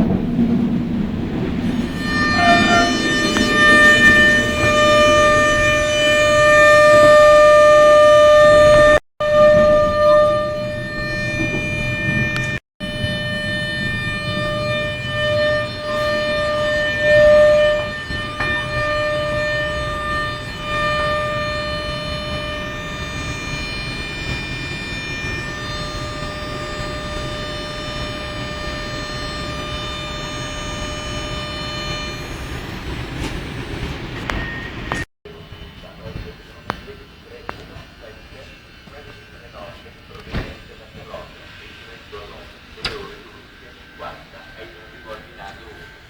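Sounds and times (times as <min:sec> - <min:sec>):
electric train rumbling: 0:00.0 - 0:46.0
train high whine: 0:00.0 - 0:46.0.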